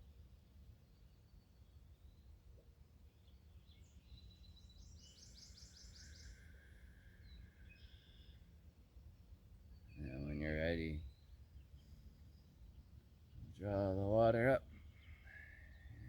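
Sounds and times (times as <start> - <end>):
faint birdsong: 0.0 - 16.0
low outdoor rumble: 9.9 - 11.1.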